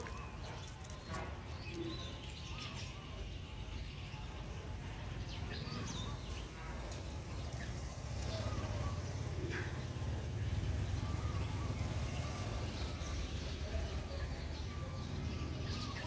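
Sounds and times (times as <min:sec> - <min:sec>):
birds chirping: 0:00.0 - 0:16.0
low cooing bird: 0:05.4 - 0:16.0.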